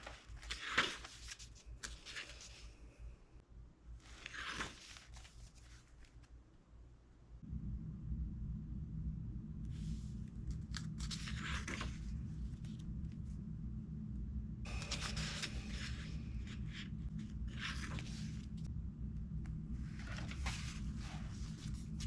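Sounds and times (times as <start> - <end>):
low rumble: 7.4 - 22.0.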